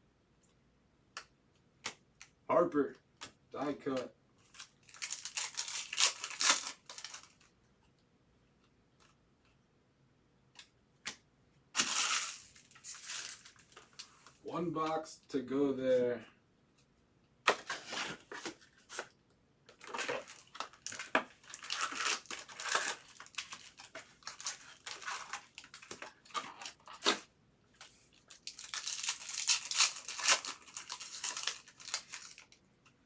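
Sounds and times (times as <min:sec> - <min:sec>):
foil wrappers torn and crinkled: 0:04.5 - 0:07.5, 0:11.8 - 0:14.1, 0:19.7 - 0:27.2, 0:28.1 - 0:32.6.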